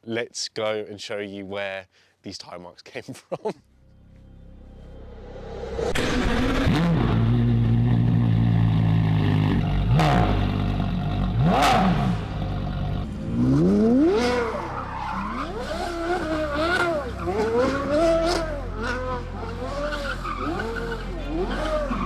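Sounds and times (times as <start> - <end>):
sports car engine revving: 4.6 - 22.0.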